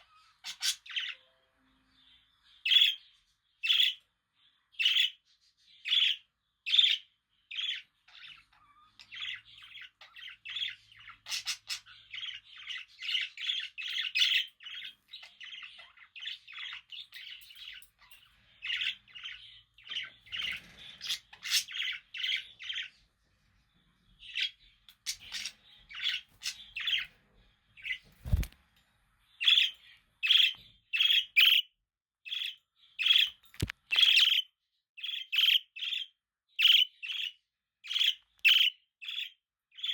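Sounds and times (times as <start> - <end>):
budgerigars chirping and chattering: 0.0 - 28.6, 29.3 - 39.9.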